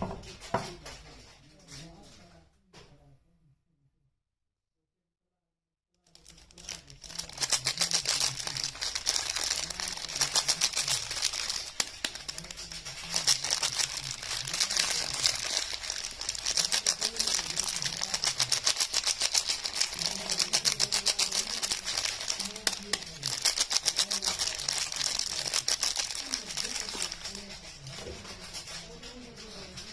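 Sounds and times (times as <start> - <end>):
soap packaging crinkling: 6.1 - 27.4.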